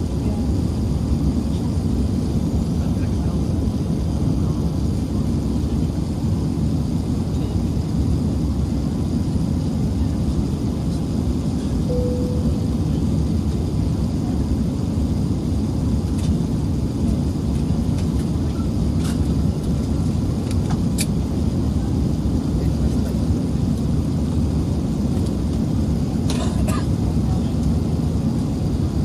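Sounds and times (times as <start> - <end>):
airplane cabin rumble: 0.0 - 29.0
short tone: 11.9 - 13.1.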